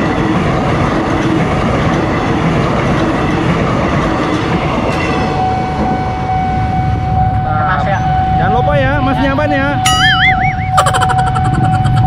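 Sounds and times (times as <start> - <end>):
train passing with rolling rumble: 0.0 - 12.0
steady high tone: 5.4 - 12.0.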